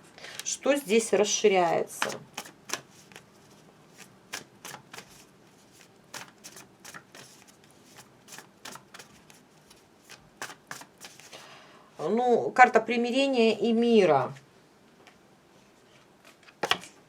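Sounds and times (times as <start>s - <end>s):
cards being shuffled: 1.9s - 11.4s.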